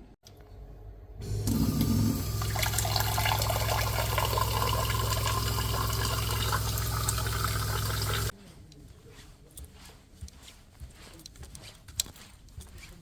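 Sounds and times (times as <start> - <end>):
low hum: 0.4 - 8.3
water running: 1.2 - 8.3.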